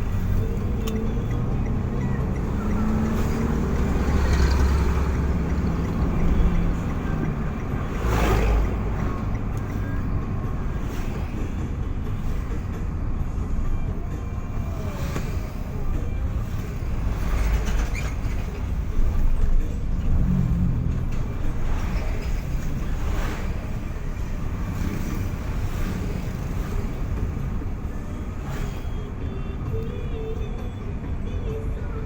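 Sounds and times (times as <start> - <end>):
vehicle engine and road rumble: 0.0 - 32.0.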